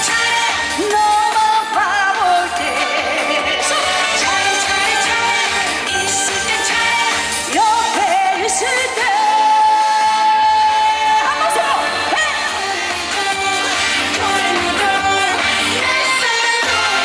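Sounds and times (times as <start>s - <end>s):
pop backing track: 0.0s - 17.0s
woman singing: 0.0s - 17.0s.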